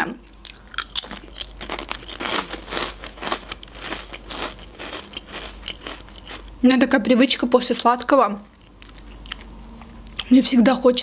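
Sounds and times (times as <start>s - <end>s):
chewing crunchy chips: 0.4s - 6.6s, 8.4s - 10.3s.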